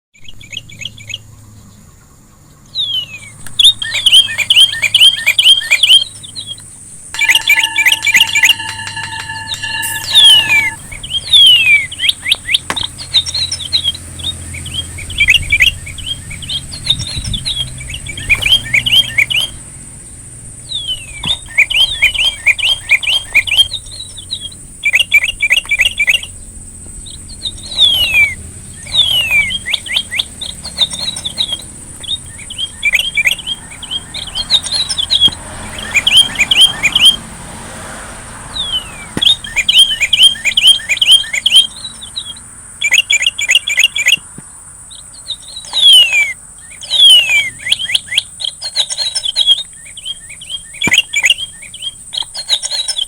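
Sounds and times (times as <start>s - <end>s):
songbird singing: 0.2s - 53.0s
thin high-pitched whine: 3.4s - 14.0s.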